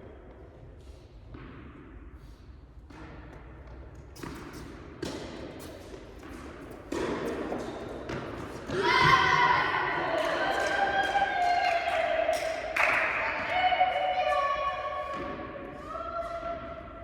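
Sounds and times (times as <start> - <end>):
tennis balls bouncing on court: 2.9 - 16.9
tennis balls struck by rackets: 4.2 - 9.2.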